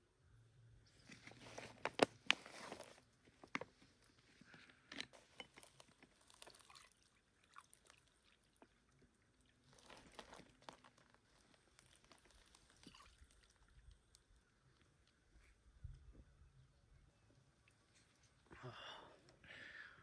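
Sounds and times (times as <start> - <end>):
crunching and rustling: 0.9 - 8.8, 9.4 - 15.6.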